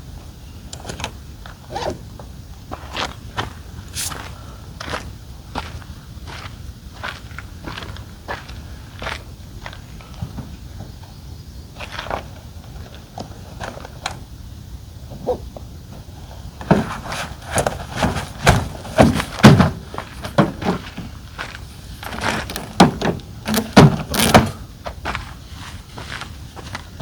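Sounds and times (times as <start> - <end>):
knocks and thuds of gear handled: 22.0 - 24.6.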